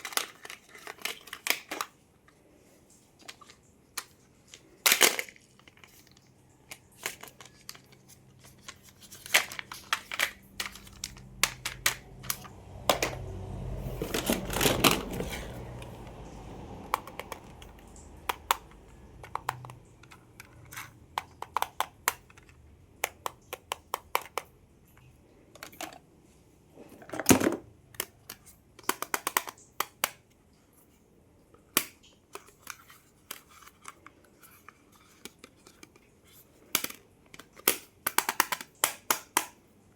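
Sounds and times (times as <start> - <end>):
packaging scraping and rustling: 0.0 - 2.0, 2.9 - 16.3
plastic toy cars tapping and clicking: 0.0 - 2.3, 2.9 - 26.1, 26.9 - 30.4, 31.6 - 39.7.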